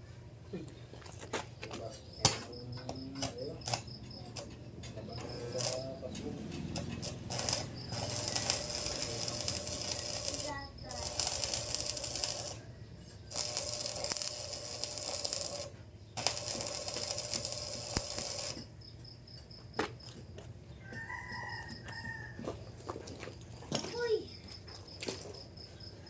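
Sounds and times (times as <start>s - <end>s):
hand tool clicking on metal: 2.2s - 12.6s, 13.3s - 18.6s
rooster crowing: 7.3s - 10.1s, 20.8s - 22.8s.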